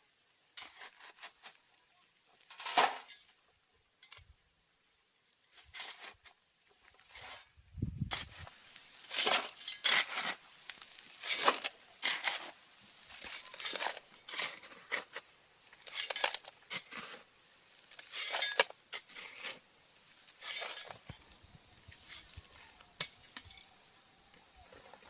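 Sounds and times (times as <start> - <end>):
hard objects clinking and scraping: 9.0 - 17.3, 17.9 - 19.6, 20.4 - 21.3.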